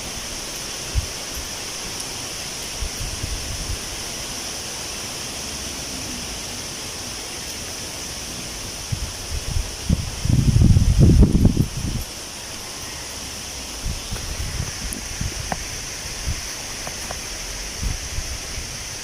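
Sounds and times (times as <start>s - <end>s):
wind gusts buffeting microphone: 0.0s - 4.4s, 8.4s - 19.0s
wind rustling tree leaves: 0.0s - 19.0s.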